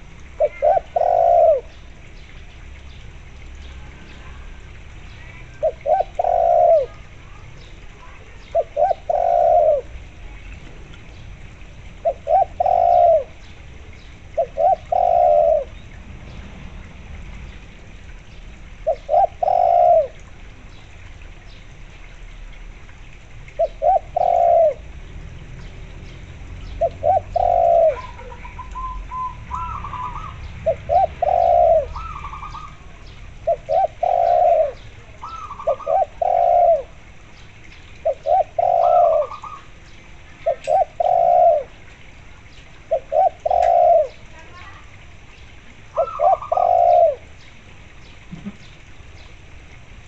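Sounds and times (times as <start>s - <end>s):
dove cooing: 0.0s - 1.8s, 5.5s - 7.4s, 8.0s - 10.2s, 12.0s - 13.5s, 14.3s - 15.8s, 18.8s - 20.2s, 23.5s - 25.0s, 26.6s - 37.2s, 38.0s - 39.8s, 40.4s - 42.0s, 42.8s - 44.9s, 45.8s - 47.4s
higher trilling dove coos: 0.0s - 1.8s, 5.6s - 7.2s, 8.0s - 10.0s, 12.0s - 13.5s, 14.3s - 15.8s, 18.8s - 20.2s, 23.5s - 24.9s, 26.7s - 37.0s, 38.0s - 39.8s, 40.4s - 41.8s, 42.8s - 44.8s, 45.8s - 47.4s.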